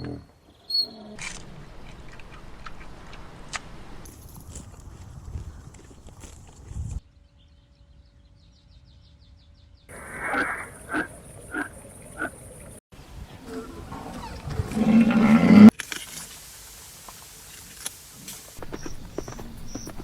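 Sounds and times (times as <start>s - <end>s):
short animal calls: 9.9s - 12.5s
loud low animal call: 9.9s - 12.7s
drawn-out animal call: 9.9s - 12.8s.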